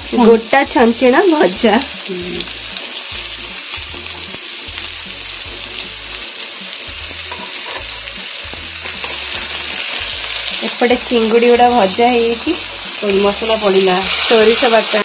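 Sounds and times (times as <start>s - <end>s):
vegetables sizzling in oil: 0.0s - 15.0s
metal spatula scraping pan: 7.3s - 8.0s.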